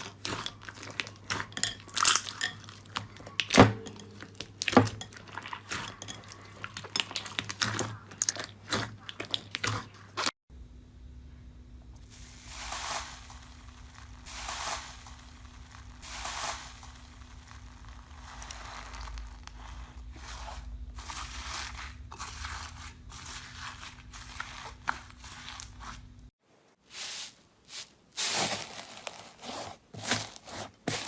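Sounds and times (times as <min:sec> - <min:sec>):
faint steady hum: 0:10.5 - 0:26.3.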